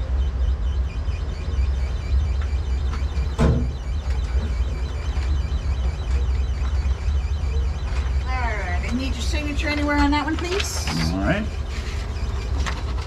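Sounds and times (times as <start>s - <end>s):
vehicle engine rumbling: 0.0s - 13.0s
sharp knock: 3.4s - 3.8s.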